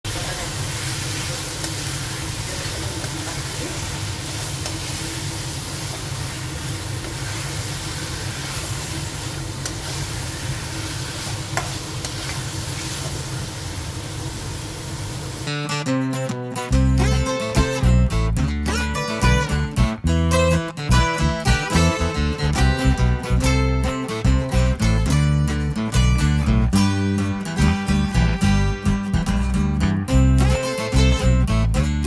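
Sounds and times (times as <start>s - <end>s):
chicken sizzling in oil: 0.1s - 15.5s.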